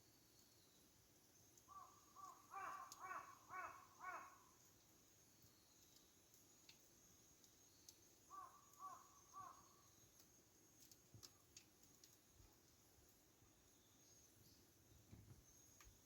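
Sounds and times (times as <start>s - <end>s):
campfire crackling: 0.3s - 13.8s
distant crow cawing: 1.7s - 4.6s, 8.3s - 9.7s.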